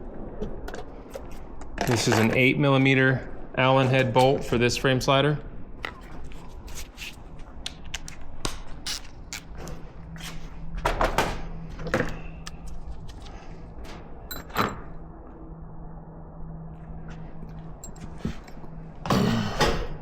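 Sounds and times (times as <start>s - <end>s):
low hum: 0.0s - 20.0s
metal tools clinking: 13.8s - 14.9s, 17.7s - 18.7s.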